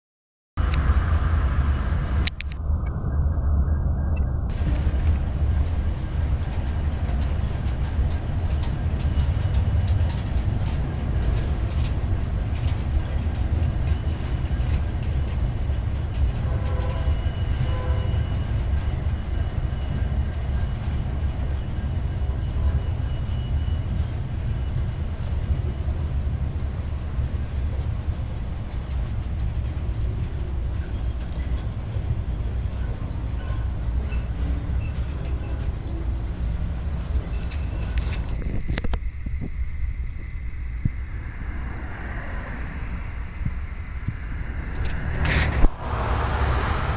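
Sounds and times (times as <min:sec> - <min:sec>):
freight train rumble: 0:00.6 - 0:46.9
wheels ticking on rails: 0:04.5 - 0:46.9
faint high squeaks: 0:30.0 - 0:39.0.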